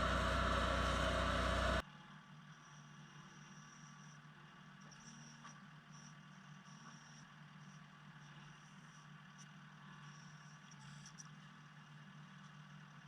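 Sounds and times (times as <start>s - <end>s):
faint high whine: 0.0s - 1.8s
faint engine hum: 0.0s - 2.1s.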